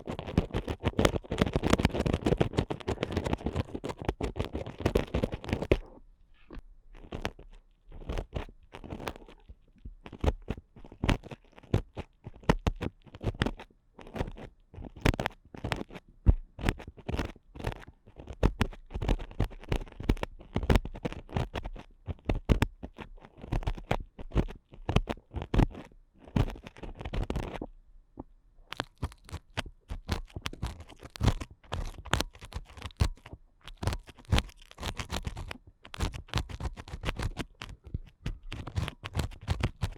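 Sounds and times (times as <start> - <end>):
ear pick scraping in microphone: 0.0 - 9.5, 28.7 - 39.9.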